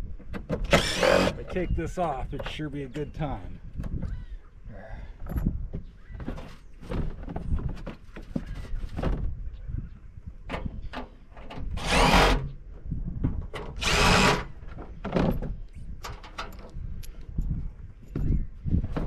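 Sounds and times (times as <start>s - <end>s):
power drill running: 0.7s - 1.4s, 11.8s - 12.4s, 13.8s - 14.5s
handling knocks and clatter: 14.6s - 16.8s.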